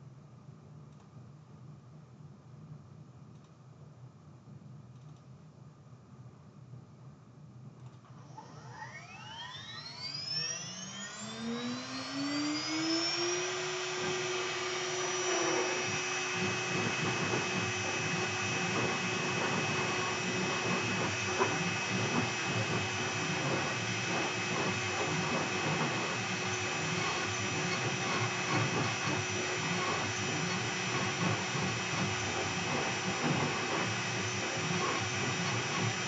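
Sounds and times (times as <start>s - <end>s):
router spindle whine: 8.1s - 36.0s.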